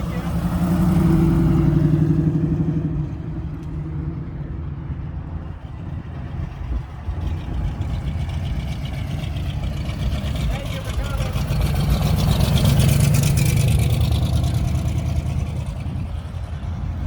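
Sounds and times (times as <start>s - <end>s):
car engine driving past: 0.0s - 16.7s
low engine rumble: 0.0s - 17.0s.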